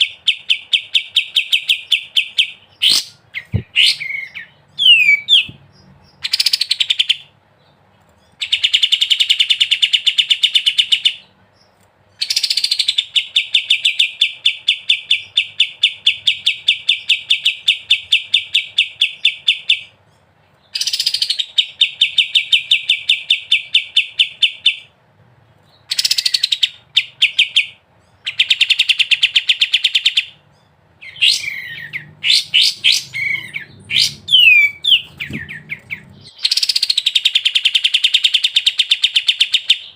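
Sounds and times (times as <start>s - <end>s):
songbird trilling: 0.0s - 7.3s, 20.6s - 24.9s, 25.8s - 39.9s.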